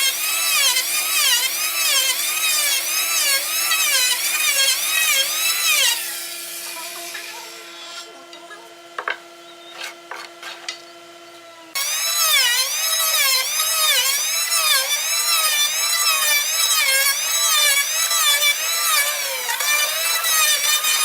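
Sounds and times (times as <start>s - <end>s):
electric power tool cutting wood: 0.0s - 21.0s.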